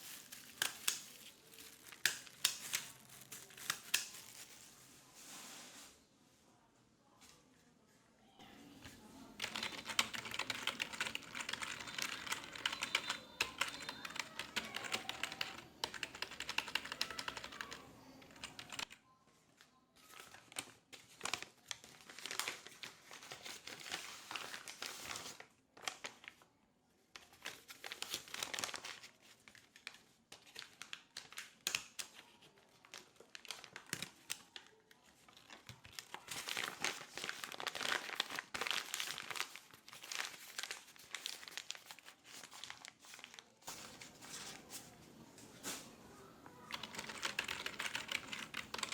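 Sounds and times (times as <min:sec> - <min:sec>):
keyboard typing: 0:09.4 - 0:19.0, 0:46.6 - 0:48.9.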